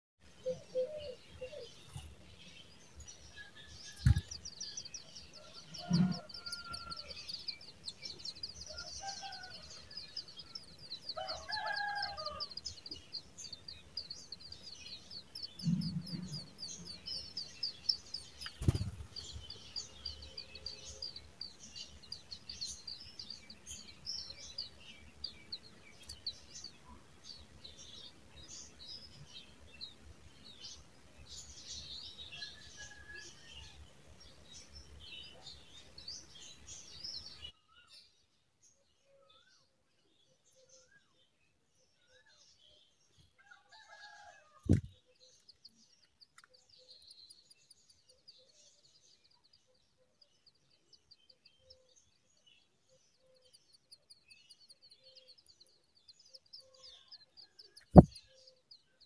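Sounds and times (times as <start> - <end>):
low thump: 4.0 - 4.3, 44.7 - 45.0, 58.0 - 58.2.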